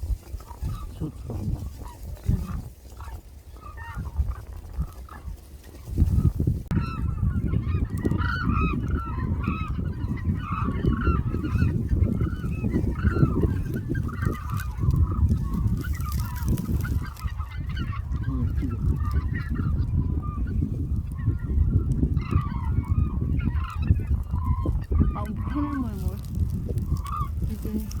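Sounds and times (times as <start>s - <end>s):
flock of cranes calling: 0.0s - 28.0s
steady low rumble: 6.5s - 28.0s.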